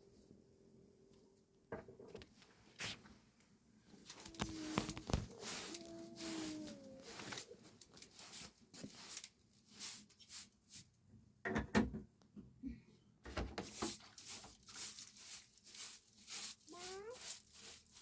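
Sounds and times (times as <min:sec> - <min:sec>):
objects being handled: 0:03.9 - 0:10.8, 0:13.3 - 0:18.0.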